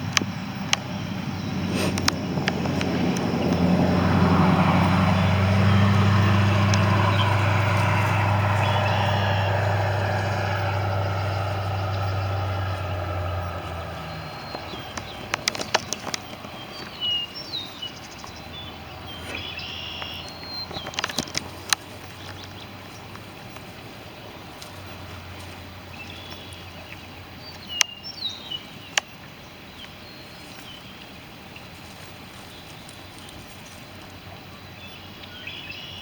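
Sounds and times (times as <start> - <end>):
faint engine hum passing: 0.0 - 36.0
sharp clicks: 6.2 - 17.2, 19.3 - 22.5
short bird chirps: 19.3 - 20.6.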